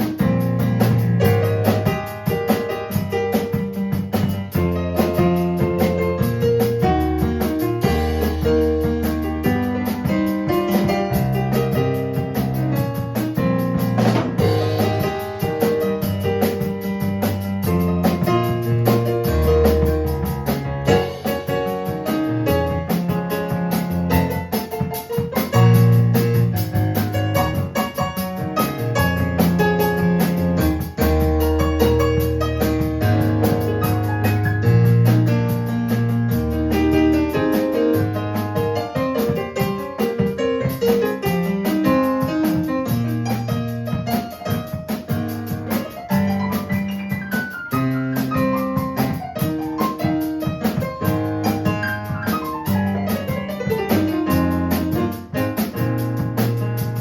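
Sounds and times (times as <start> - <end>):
held bass notes: 0.0 - 44.1
drum beat: 0.0 - 57.0
electric keyboard chords: 0.0 - 57.0
quick high ticking rhythm: 0.0 - 57.0.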